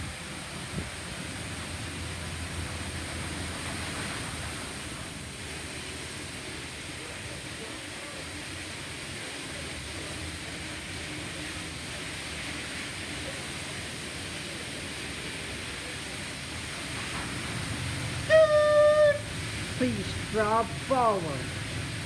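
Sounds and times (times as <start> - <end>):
car wash spray hissing: 14.2 - 22.0.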